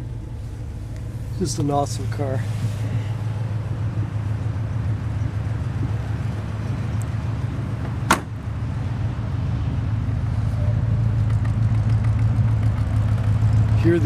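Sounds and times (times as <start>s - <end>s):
car engine idling: 0.0s - 14.0s
sharp knock: 8.1s - 8.4s.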